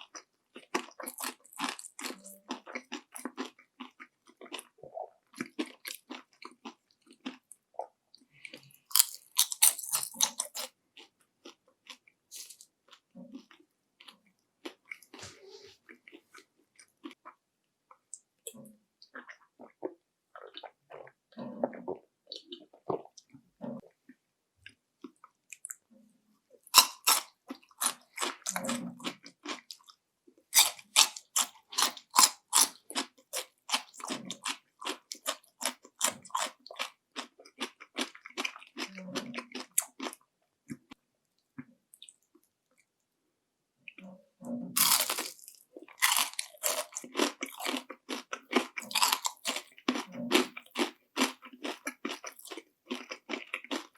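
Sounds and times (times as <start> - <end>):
crunching fried food: 0.0 - 15.3, 26.6 - 41.0, 44.7 - 53.9.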